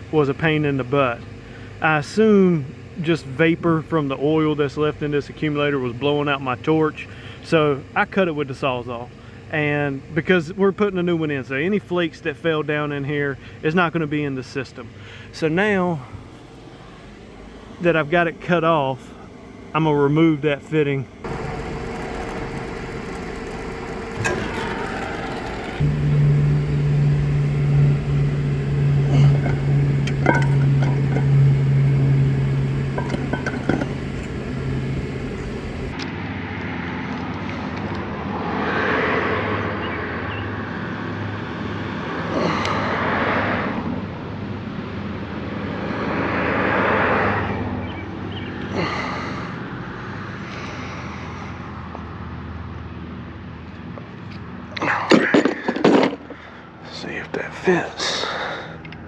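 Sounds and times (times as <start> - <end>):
low machine hum: 0.0 - 36.0.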